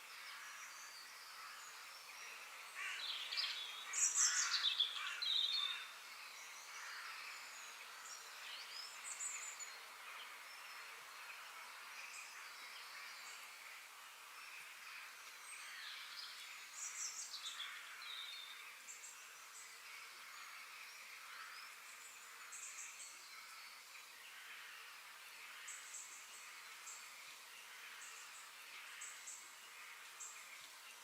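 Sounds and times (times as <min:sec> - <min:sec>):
birds calling: 0:02.7 - 0:05.9
distant bird calls: 0:02.7 - 0:06.0.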